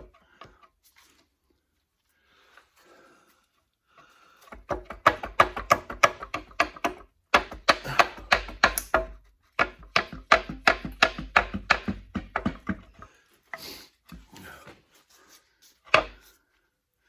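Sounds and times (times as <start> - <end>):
rapid sharp taps on metal: 4.5 - 13.1.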